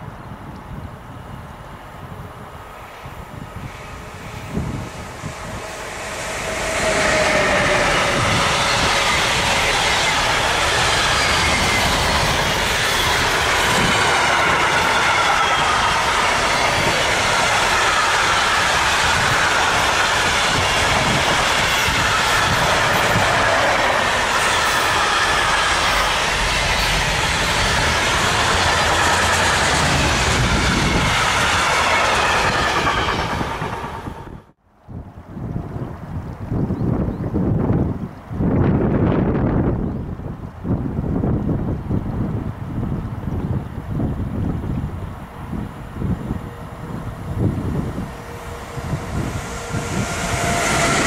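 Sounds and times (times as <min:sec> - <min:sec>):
freight wagons rumbling on rails: 0:03.3 - 0:34.6, 0:37.1 - 0:51.0.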